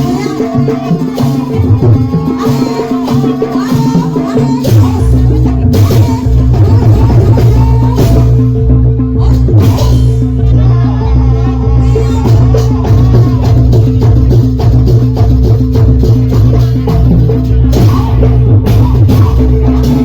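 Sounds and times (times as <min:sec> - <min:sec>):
drums and percussion: 0:00.0 - 0:20.0
held low tones: 0:04.7 - 0:20.0.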